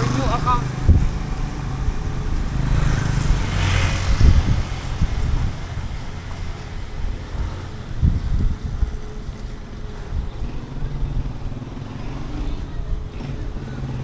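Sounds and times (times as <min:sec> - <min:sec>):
street traffic rumble: 0:00.0 - 0:14.0
wind buffeting microphone: 0:00.0 - 0:14.0.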